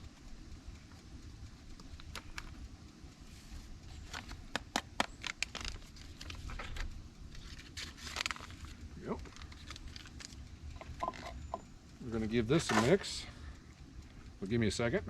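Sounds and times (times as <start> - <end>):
low background rumble: 0.0 - 15.0
packet crinkling and tearing: 4.0 - 10.5.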